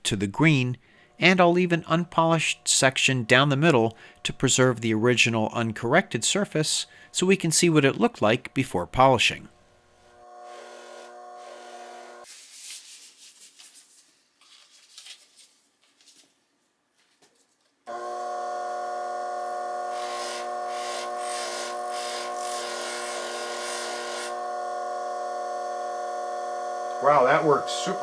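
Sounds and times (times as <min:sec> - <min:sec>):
bench grinder motor whine: 0:09.9 - 0:12.2, 0:17.9 - 0:28.0
rushing hiss of buffing: 0:10.4 - 0:12.2, 0:19.2 - 0:28.0
handling and rubbing sounds: 0:12.2 - 0:17.8.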